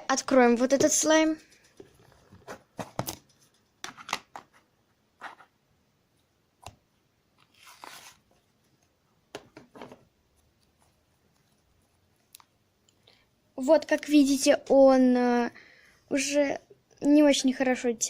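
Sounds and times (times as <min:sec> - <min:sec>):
faint clicks and crackles: 0:01.0 - 0:02.4, 0:10.4 - 0:13.2.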